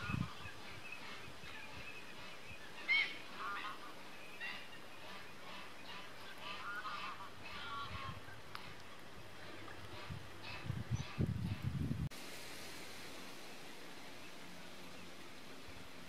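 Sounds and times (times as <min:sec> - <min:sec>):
birds calling: 0:00.0 - 0:11.7.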